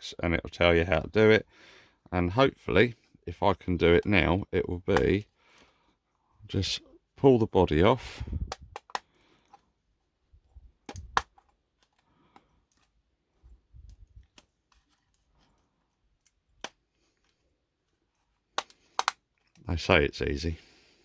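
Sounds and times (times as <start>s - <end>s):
sharp plastic clicks: 8.4s - 9.6s, 10.8s - 12.9s, 18.5s - 19.6s.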